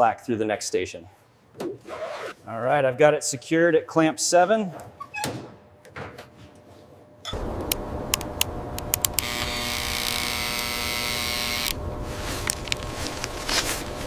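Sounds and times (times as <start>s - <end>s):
small electric motor whirring: 9.0s - 11.8s.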